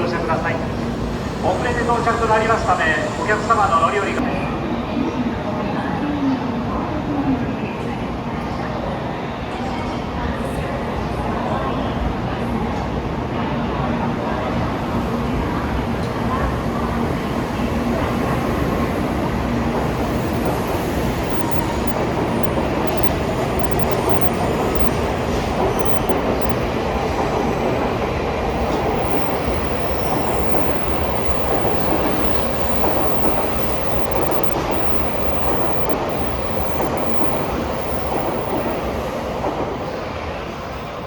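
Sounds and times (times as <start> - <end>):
train rushing rumble: 0.0 - 4.2, 14.0 - 41.0.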